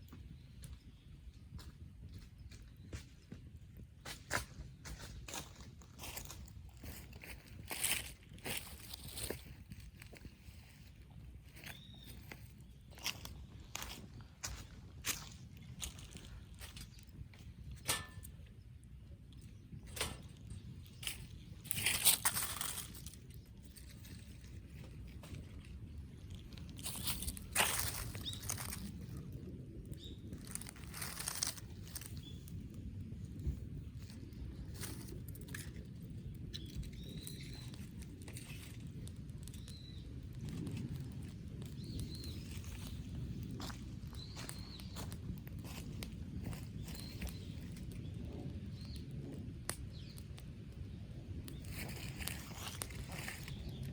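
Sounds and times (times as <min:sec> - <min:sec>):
steady low rumble: 0:03.0 - 0:53.9
wood fire crackling: 0:03.3 - 0:53.9
small bird chirping: 0:11.6 - 0:13.9, 0:26.3 - 0:28.9.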